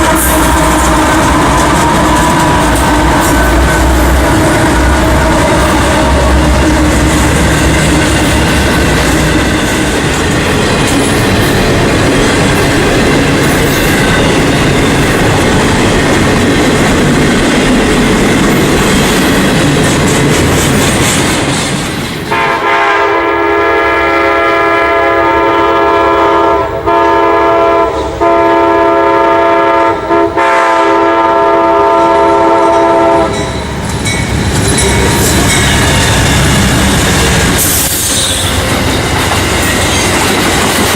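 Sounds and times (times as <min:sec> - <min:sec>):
locomotive air horn chord: 0:00.0 - 0:08.2, 0:22.3 - 0:33.4
train rolling noise: 0:00.0 - 0:40.9.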